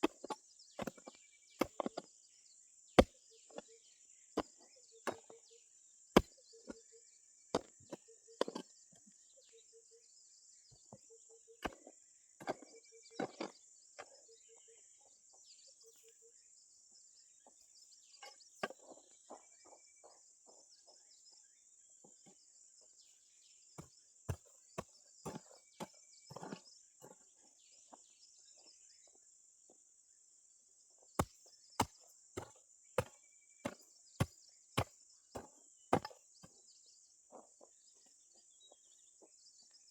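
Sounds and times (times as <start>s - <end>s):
hand tool chopping strikes: 24.3s - 25.6s, 31.2s - 36.2s.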